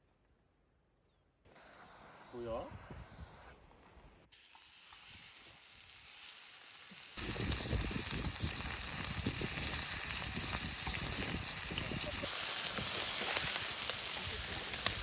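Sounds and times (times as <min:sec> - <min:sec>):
food sizzling in hot oil: 0:04.3 - 0:15.0.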